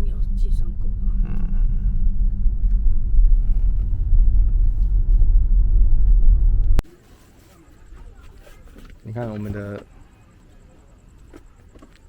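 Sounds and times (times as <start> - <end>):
road rumble inside car: 0.0 - 6.8.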